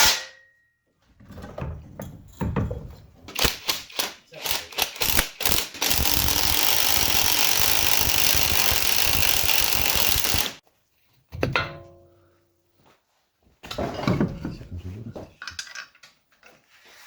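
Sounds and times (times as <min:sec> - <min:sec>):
pneumatic tool hammering buzz: 0:03.4 - 0:10.6.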